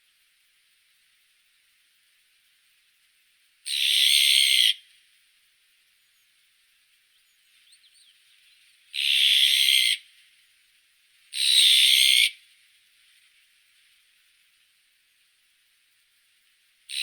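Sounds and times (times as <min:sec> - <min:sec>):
faint steady hiss: 0:00.0 - 0:11.4, 0:12.2 - 0:17.0
magpie harsh rasping calls: 0:03.7 - 0:04.8, 0:09.0 - 0:10.0
faint bird chirps: 0:05.8 - 0:10.7.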